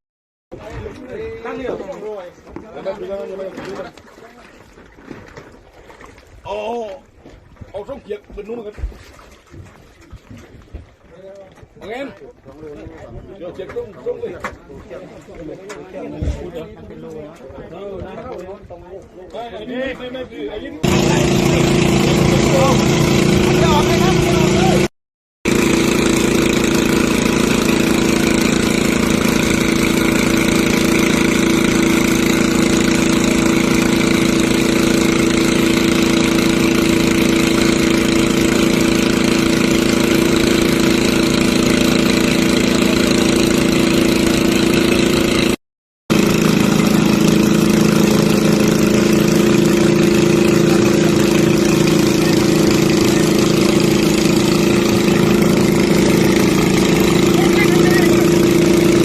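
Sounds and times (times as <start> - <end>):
engine running steadily: 20.8 - 24.9, 25.5 - 59.0.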